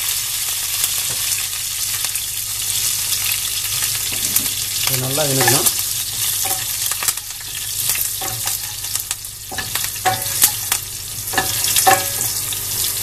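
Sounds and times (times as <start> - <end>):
spices sizzling in oil: 0.0 - 13.0
spatula scraping a pan: 7.5 - 8.9, 9.5 - 12.4.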